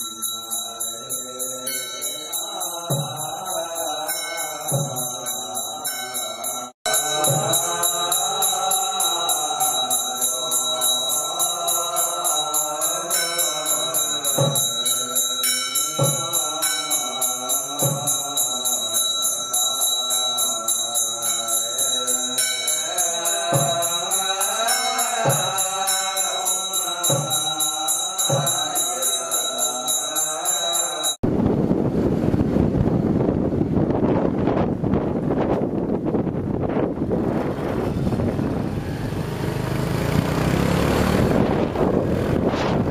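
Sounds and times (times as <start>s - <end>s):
small bells jingling: 0.0s - 31.2s
voices chanting: 0.0s - 31.2s.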